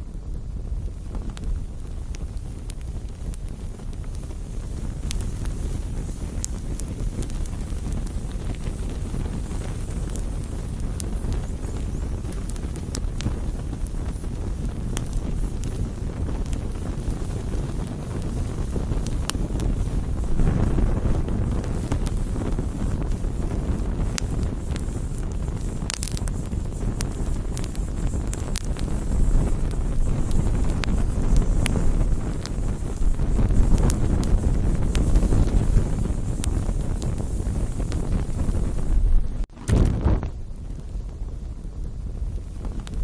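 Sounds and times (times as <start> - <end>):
campfire crackling and popping: 0.0 - 43.0
wind rumble on microphone: 0.0 - 43.0.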